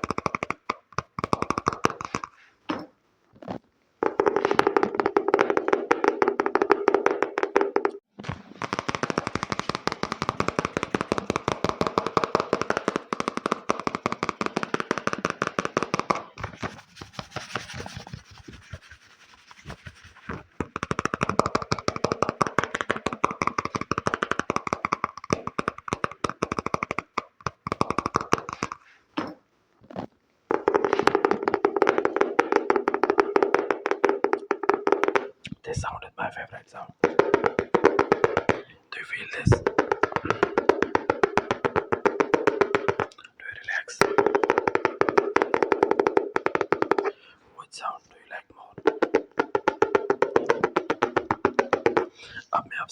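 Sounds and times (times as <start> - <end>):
fast tapping: 0.0 - 2.4, 4.0 - 28.9, 30.5 - 47.9, 48.6 - 52.9
soft scratching: 16.4 - 20.6.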